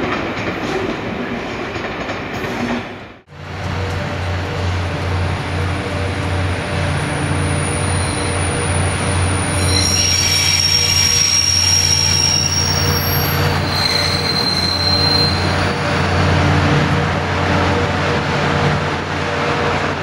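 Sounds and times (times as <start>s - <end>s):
train humming on rails: 0.0s - 20.0s
high metallic squeals: 7.3s - 15.9s.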